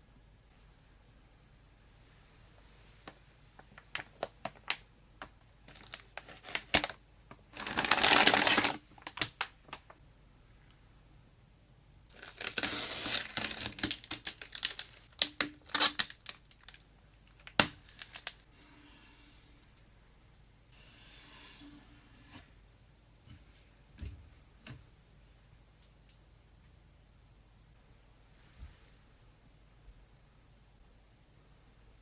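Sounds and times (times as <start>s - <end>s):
plastic packaging crinkling: 3.6s - 10.0s, 12.1s - 18.4s.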